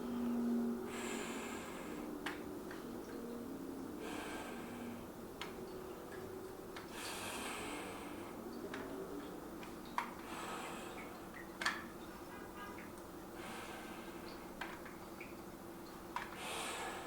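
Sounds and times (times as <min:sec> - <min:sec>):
man breathing hard: 0:16.4 - 0:17.0.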